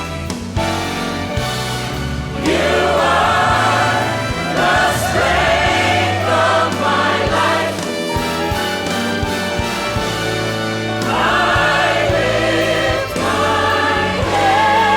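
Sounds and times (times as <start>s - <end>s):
instrumental accompaniment: 0.0s - 14.9s
group of voices singing: 2.3s - 8.6s, 10.8s - 14.9s.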